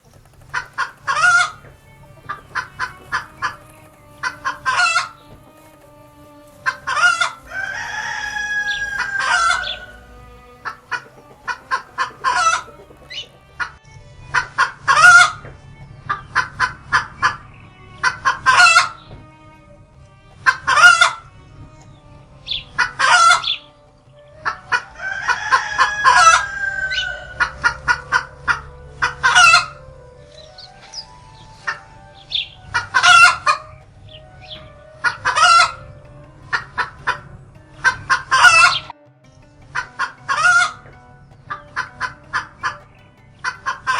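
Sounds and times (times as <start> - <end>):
chicken clucking: 0.0 - 13.8
long drawn-out crows: 0.1 - 13.8, 16.2 - 29.8.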